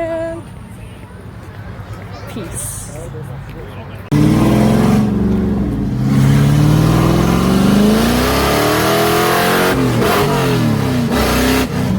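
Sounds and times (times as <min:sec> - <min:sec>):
car engine revving: 0:04.1 - 0:11.9.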